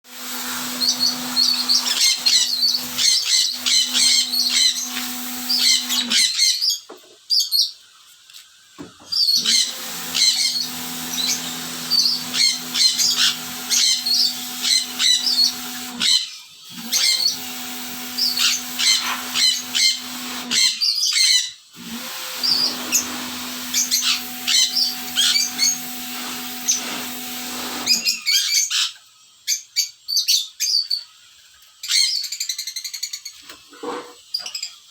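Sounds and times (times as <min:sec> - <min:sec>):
electric water pump humming: 0:00.0 - 0:06.4, 0:09.3 - 0:20.9, 0:21.7 - 0:28.4
birds chirping: 0:00.5 - 0:07.8, 0:09.0 - 0:21.6, 0:22.4 - 0:31.2.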